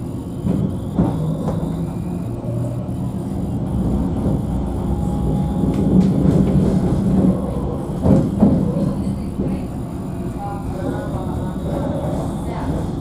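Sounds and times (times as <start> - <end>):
tram running on rails: 0.0 - 13.0.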